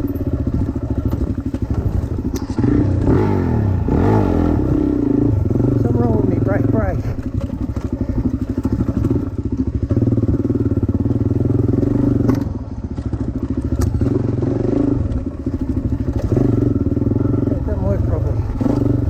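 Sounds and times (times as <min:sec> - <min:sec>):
dirt bike engine revving: 0:00.0 - 0:19.0
sharp clicks: 0:02.2 - 0:02.6.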